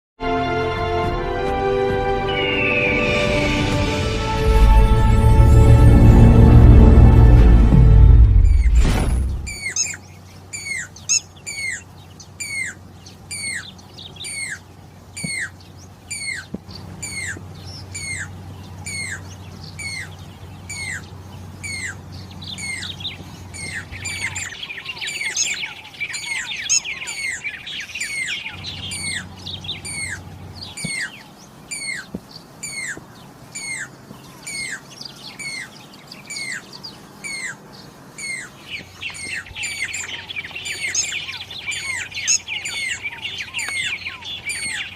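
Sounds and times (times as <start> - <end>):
cuckoo whistled calls: 2.2 - 3.7, 9.4 - 11.8, 12.4 - 14.6, 15.2 - 33.0, 33.6 - 37.6, 38.2 - 44.9
chattering bird notes: 9.4 - 44.9.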